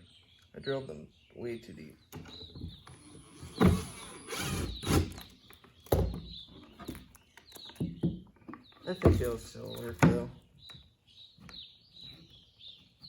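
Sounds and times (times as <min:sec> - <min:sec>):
wooden boards knocking and scraping: 0:05.8 - 0:10.4.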